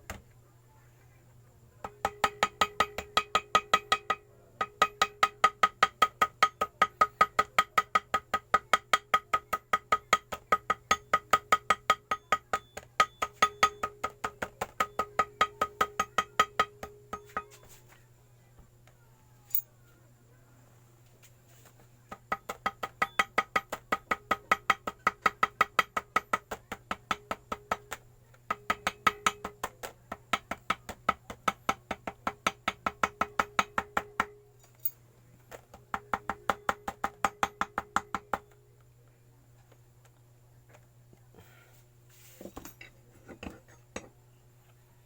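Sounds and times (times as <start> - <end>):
small hammer tapping metal: 1.8 - 17.8, 19.5 - 19.7, 22.0 - 38.6.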